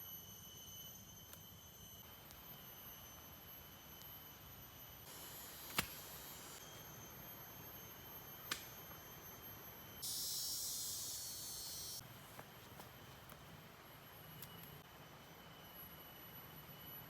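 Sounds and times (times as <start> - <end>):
high insect trill: 0.0 - 12.0
loud high buzz: 10.0 - 12.0.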